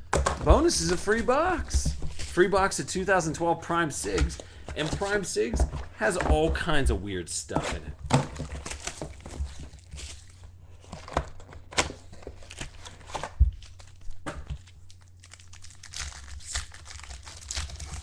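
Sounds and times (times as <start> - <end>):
wrappers torn and crinkled: 12.4 - 18.0.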